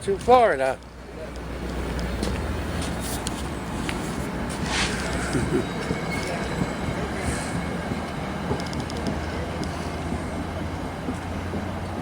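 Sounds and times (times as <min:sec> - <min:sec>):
train wheels rumbling on rails: 0:00.0 - 0:12.0
high wheel squeal: 0:02.8 - 0:10.6.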